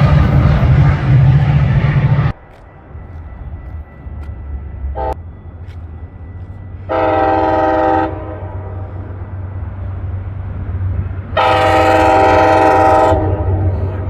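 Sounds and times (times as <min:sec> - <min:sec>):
train rumbling: 0:00.0 - 0:14.0
locomotive air horn: 0:05.0 - 0:05.2, 0:06.8 - 0:09.0, 0:11.3 - 0:14.0.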